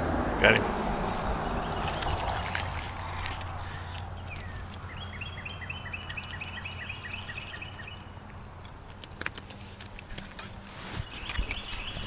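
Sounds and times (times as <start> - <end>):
bird trilling: 1.0 - 8.7, 11.0 - 12.0.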